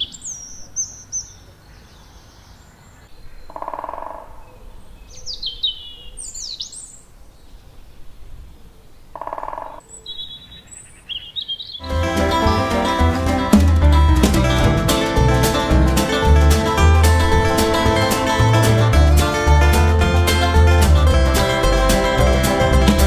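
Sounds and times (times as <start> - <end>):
birds singing whistled phrases: 0.0 - 2.6, 5.0 - 7.0, 9.9 - 11.8
low coarse bird calls: 0.0 - 11.8.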